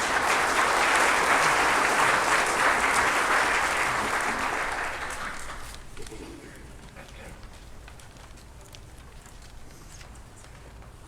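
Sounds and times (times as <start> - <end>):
congregation applauding: 0.0 - 6.2.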